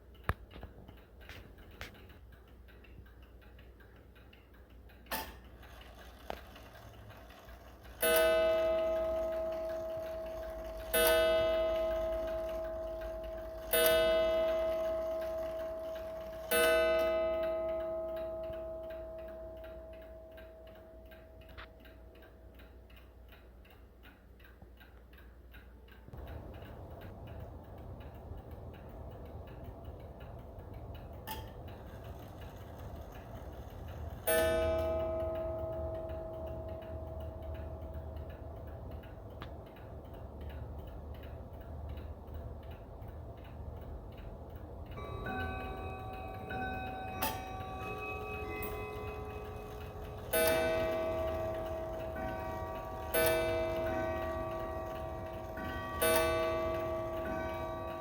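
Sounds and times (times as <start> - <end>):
clock ticking: 0.0 - 58.0
clock striking ringing note: 5.1 - 21.7, 31.3 - 38.5, 45.0 - 58.0.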